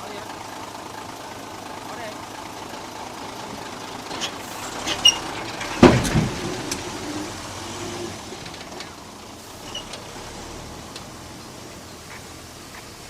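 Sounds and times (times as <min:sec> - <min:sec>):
heavy machinery working: 0:02.4 - 0:13.0
loud clank with deep rumble: 0:03.4 - 0:11.2.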